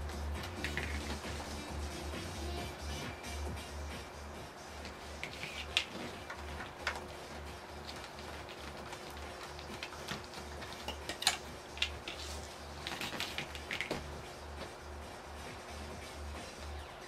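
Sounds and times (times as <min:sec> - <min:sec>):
metal parts and tools clicking: 0:09.6 - 0:14.0.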